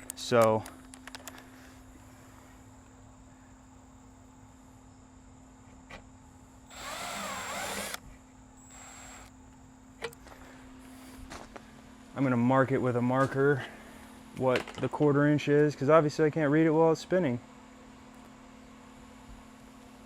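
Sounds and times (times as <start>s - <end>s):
power drill whining: 6.7s - 8.0s, 8.6s - 9.3s.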